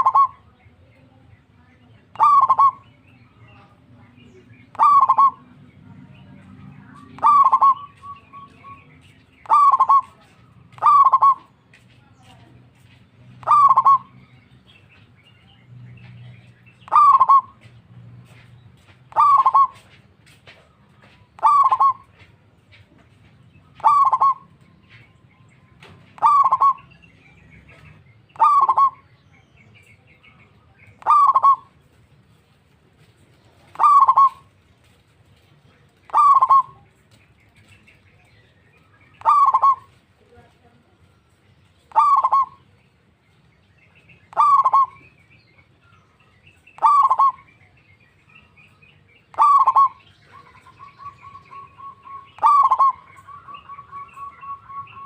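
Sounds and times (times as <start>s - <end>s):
dove cooing: 0.0s - 0.5s, 2.1s - 2.8s, 4.7s - 5.6s, 6.9s - 11.6s, 13.4s - 14.1s, 16.3s - 18.4s, 19.1s - 19.9s, 21.3s - 22.3s, 23.7s - 24.6s, 26.2s - 27.0s, 27.7s - 29.1s, 30.9s - 31.9s, 33.6s - 35.0s, 35.9s - 37.7s, 39.2s - 40.0s, 41.8s - 42.7s, 44.3s - 45.1s, 46.8s - 47.5s, 49.3s - 55.0s.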